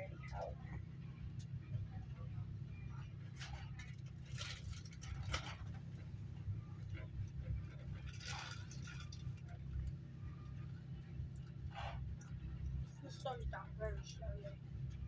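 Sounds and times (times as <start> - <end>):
low hum inside train coach: 0.0 - 15.0
rustling or scraping noises: 3.4 - 6.0, 7.7 - 9.8.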